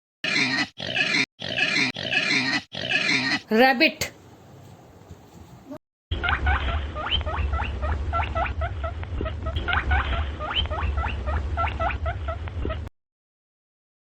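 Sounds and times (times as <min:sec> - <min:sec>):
rabbit squeaking: 0:06.2 - 0:12.9.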